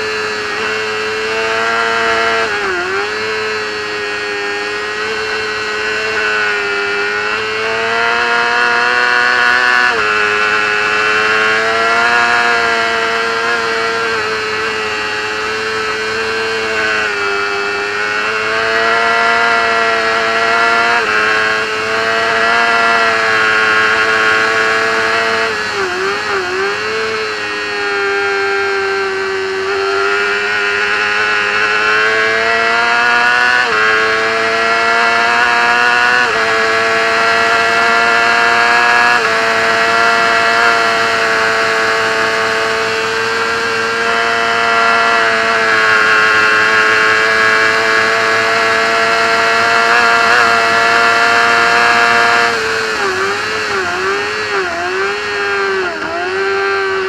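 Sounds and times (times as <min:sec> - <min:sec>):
racing motorcycle engine high revs: 0:00.0 - 0:57.0.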